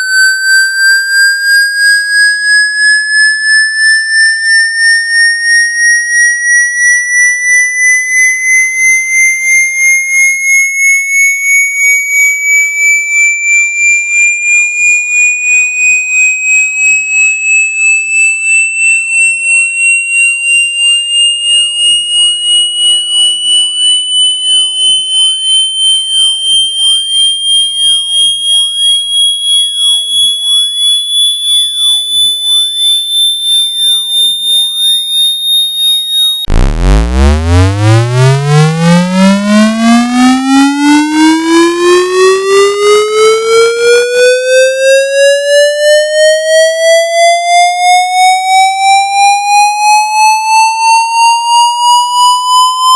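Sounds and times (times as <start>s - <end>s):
pulsing electronic tone sweep: 0.0s - 10.3s, 33.5s - 44.4s.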